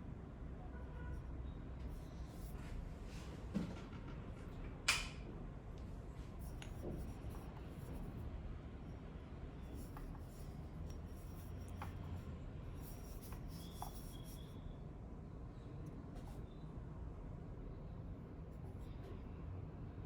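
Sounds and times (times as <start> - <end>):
steady low hum: 5.3 - 20.0
objects rubbing and scraping: 9.6 - 14.5.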